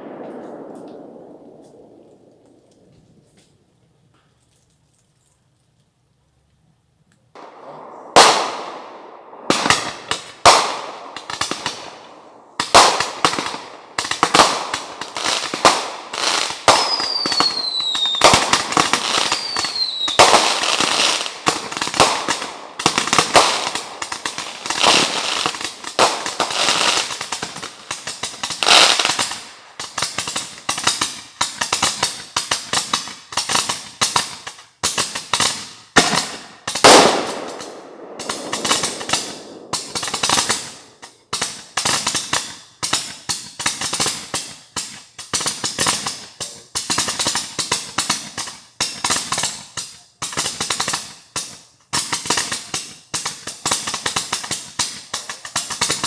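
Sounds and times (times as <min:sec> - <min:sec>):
fireworks bangs and crackling: 0:00.0 - 0:04.4, 0:07.3 - 0:56.0
falling firework whistles: 0:16.4 - 0:21.3.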